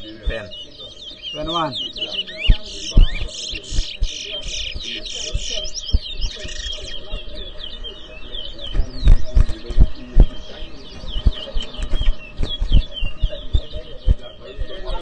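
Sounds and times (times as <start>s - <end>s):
finch chirping song: 0.0s - 15.0s
low thumps: 8.7s - 14.3s.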